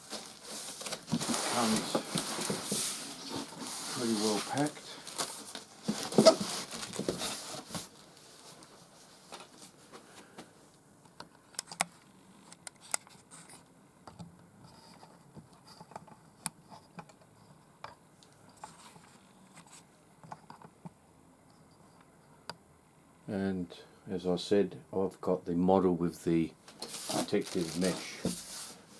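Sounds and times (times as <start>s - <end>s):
packing rustling: 0.0s - 8.6s, 26.8s - 28.9s.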